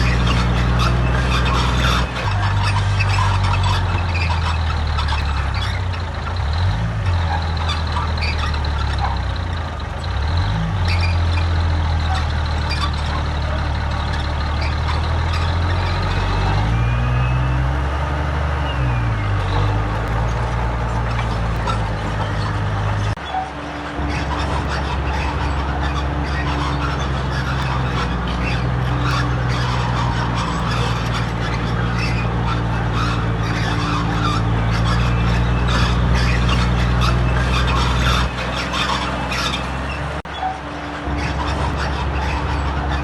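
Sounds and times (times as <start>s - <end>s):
heavy diesel engine under load: 0.0s - 43.0s.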